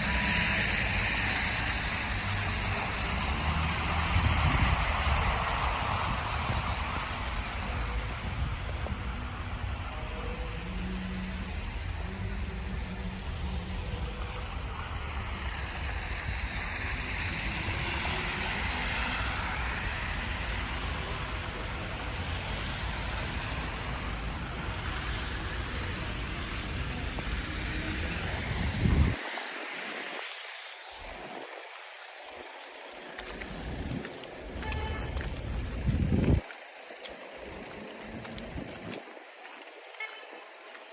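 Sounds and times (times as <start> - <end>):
passing traffic rush: 0.0 - 40.9
wind rumbling on microphone: 0.0 - 40.9.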